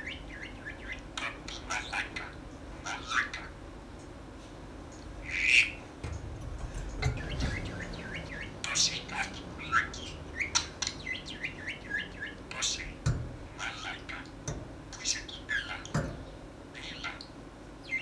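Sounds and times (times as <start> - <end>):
parrot chattering: 0.0 - 3.6, 5.2 - 5.8, 7.1 - 16.0, 16.7 - 18.0
parrot squawk: 0.4 - 3.6, 5.2 - 5.8, 8.1 - 10.7, 13.6 - 14.3, 15.0 - 15.9, 16.8 - 17.2.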